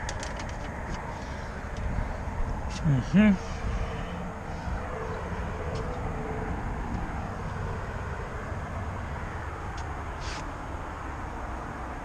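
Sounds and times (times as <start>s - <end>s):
outdoor background rumble and hiss: 0.0s - 12.0s.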